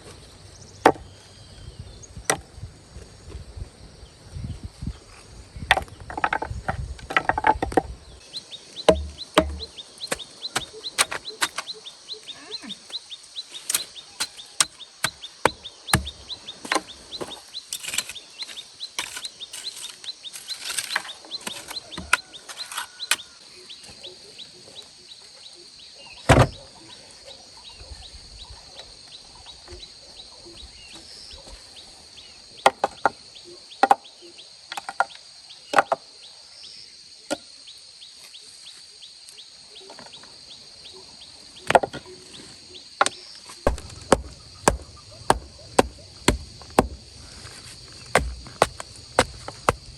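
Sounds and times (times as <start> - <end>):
insect trill: 0.2 - 49.9
bird calls: 8.0 - 27.0, 39.7 - 49.9
blade chopping bamboo: 8.9 - 11.7, 13.6 - 23.3, 43.7 - 49.9.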